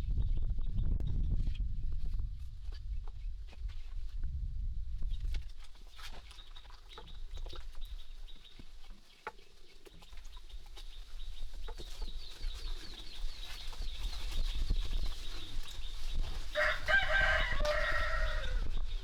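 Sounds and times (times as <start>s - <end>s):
rooster crowing: 16.6s - 18.7s.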